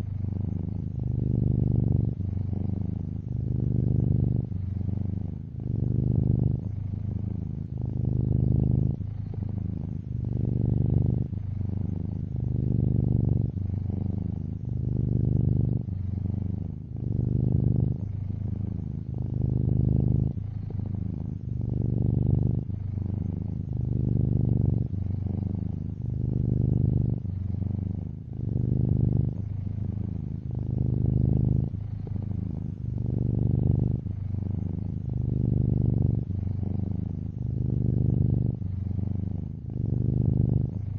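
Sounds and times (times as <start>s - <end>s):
cat purring: 0.0s - 40.9s.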